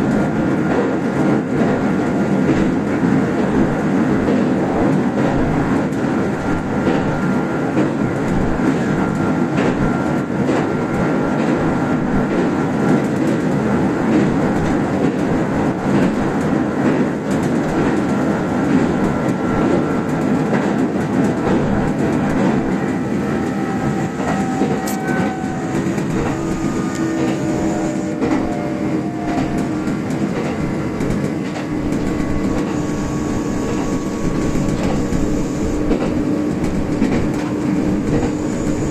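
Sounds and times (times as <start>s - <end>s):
train wheels rumbling on rail: 0.0s - 38.9s
clicking over rail joints: 10.4s - 32.8s, 33.6s - 38.4s.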